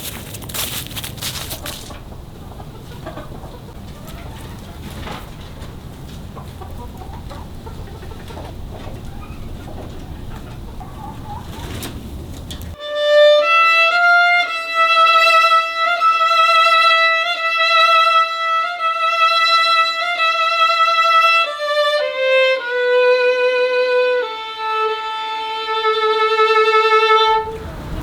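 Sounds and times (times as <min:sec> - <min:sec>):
solo violin slow melody: 0:12.8 - 0:28.0.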